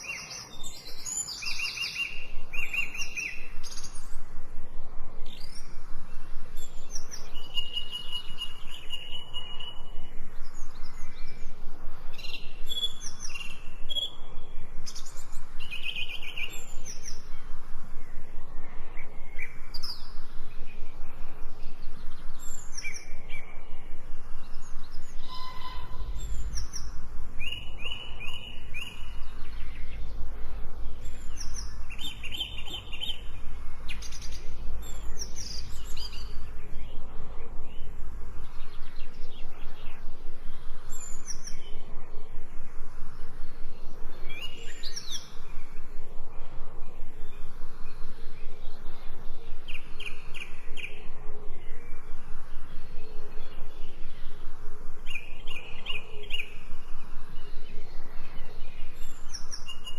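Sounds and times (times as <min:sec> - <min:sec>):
birds chirping and singing: 0:00.0 - 0:04.2, 0:06.5 - 0:17.5, 0:18.8 - 0:41.9, 0:55.1 - 0:56.8
background hiss: 0:00.0 - 0:59.9.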